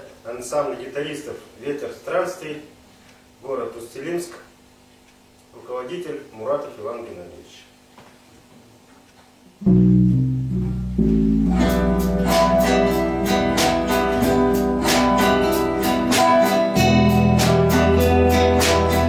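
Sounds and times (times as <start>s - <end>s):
low bass notes: 9.6s - 19.0s
plucked guitar melody: 9.6s - 19.0s
strummed guitar chords: 9.6s - 19.0s.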